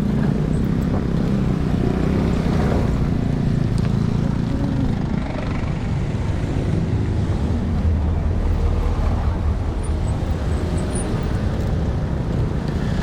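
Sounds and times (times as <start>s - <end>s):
vehicle engines running: 0.0s - 13.0s
wind and tyre rumble: 0.0s - 13.0s.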